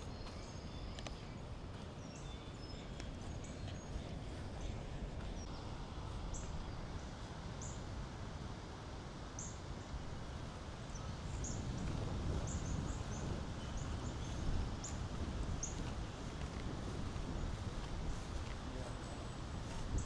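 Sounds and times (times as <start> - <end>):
small birds chirping: 0.0 - 7.8, 10.8 - 16.5
low outdoor rumble: 0.0 - 20.0.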